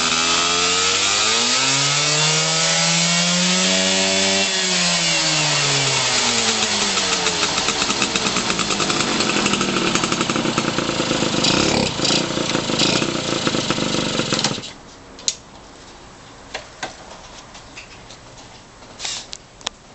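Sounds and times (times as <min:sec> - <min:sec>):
two-stroke motorcycle engine: 0:00.0 - 0:14.8.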